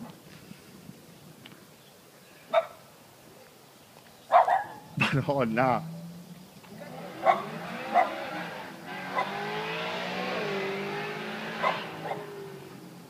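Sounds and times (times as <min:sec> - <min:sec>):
dog barking: 0:02.5 - 0:02.8, 0:04.3 - 0:04.9, 0:07.2 - 0:08.2, 0:09.1 - 0:09.4, 0:11.6 - 0:12.3
car engine through loud exhaust: 0:04.9 - 0:13.0.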